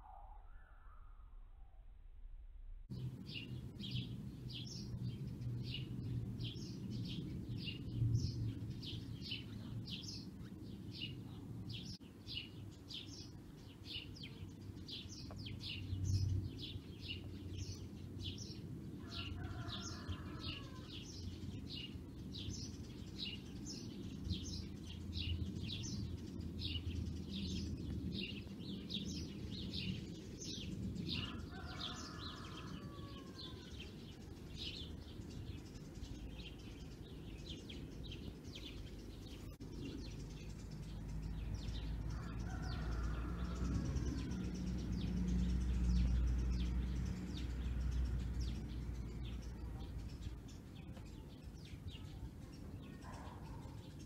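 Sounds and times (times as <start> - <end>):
lower bird call: 0.0 - 1.6
steady low rumble: 0.4 - 12.0
bird chirping: 2.9 - 54.0.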